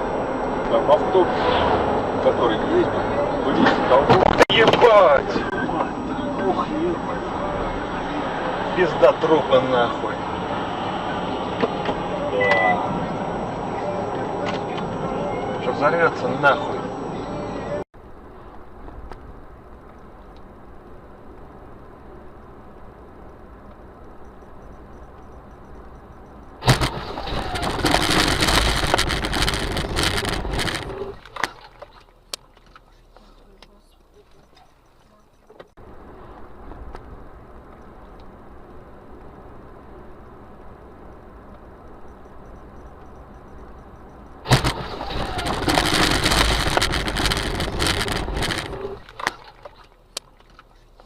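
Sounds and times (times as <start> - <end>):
road noise: 0.0 - 51.0
loud noise: 26.6 - 31.2, 44.4 - 49.0
loud vehicle crash impact: 26.6 - 31.2, 44.4 - 49.0
crunching and scraping: 26.6 - 33.4, 44.4 - 51.0.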